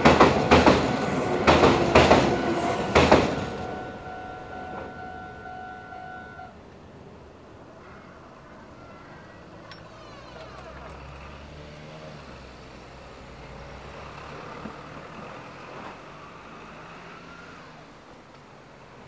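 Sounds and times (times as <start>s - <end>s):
train wheels rumbling on bridge: 0.0s - 6.3s
train running noise: 0.0s - 8.7s.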